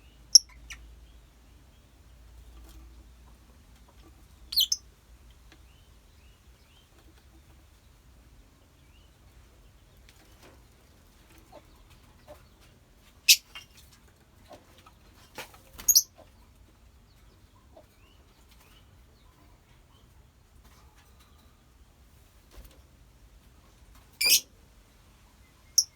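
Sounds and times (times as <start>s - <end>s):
lovebirds shrill calls: 4.5s - 4.8s, 15.8s - 16.2s, 24.2s - 24.5s
faint bird chirps: 4.5s - 4.9s, 24.2s - 24.5s, 25.3s - 25.9s.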